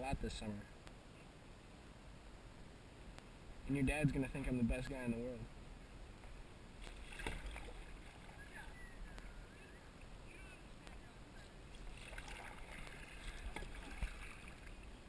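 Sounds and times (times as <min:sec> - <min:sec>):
kayak paddling on water: 0:03.6 - 0:15.0
water splashes: 0:06.7 - 0:15.0.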